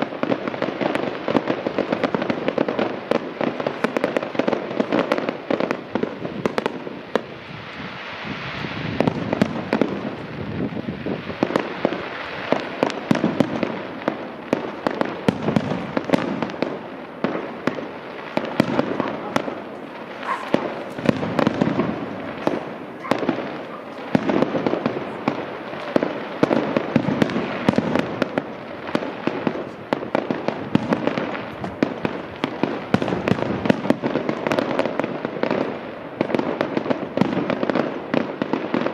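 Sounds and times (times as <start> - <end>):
fireworks bangs and cracks: 0.0 - 38.9.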